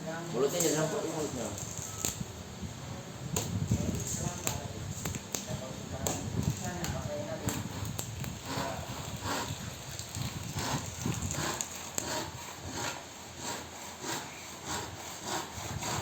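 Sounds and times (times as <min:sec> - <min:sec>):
hand tool scraping laminate edge: 0:07.4 - 0:16.0.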